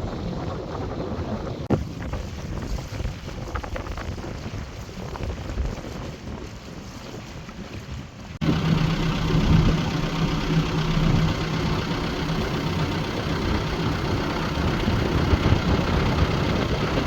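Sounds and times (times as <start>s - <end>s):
wind noise: 0.0s - 17.0s
boat engine running: 8.4s - 17.0s.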